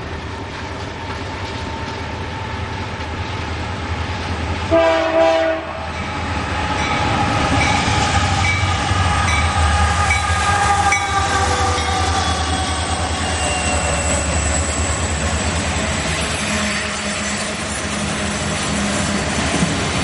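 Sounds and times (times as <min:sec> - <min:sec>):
diesel locomotives rumbling past: 0:00.0 - 0:20.0
high wheel squeals: 0:10.0 - 0:19.2.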